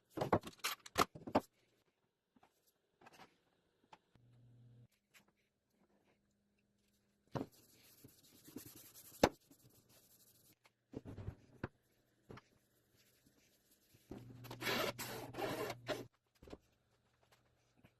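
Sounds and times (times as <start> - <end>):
hand rubbing foam surface: 7.4 - 10.6.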